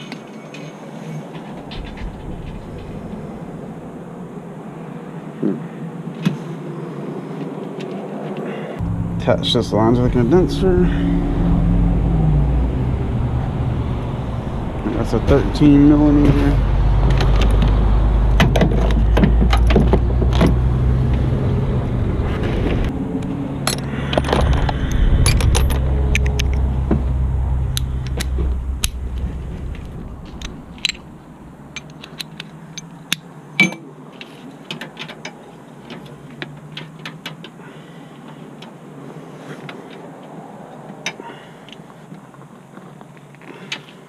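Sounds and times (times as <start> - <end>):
low steady rumble: 1.6 - 4.9, 8.8 - 19.1, 20.9 - 31.9.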